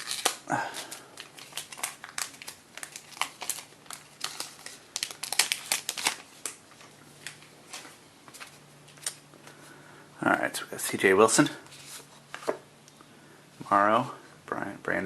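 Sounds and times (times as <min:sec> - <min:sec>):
card pack wrapper crinkling: 0:00.0 - 0:09.2.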